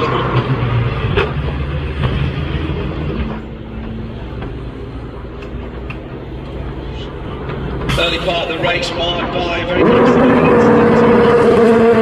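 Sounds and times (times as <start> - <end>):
race car engines running: 0.0 - 12.0.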